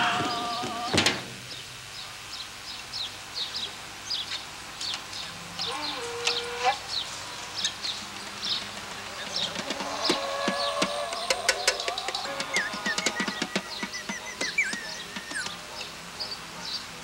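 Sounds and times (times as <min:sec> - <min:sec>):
small birds chirping: 0:01.5 - 0:17.0
lower drawn-out bird tone: 0:09.2 - 0:16.9.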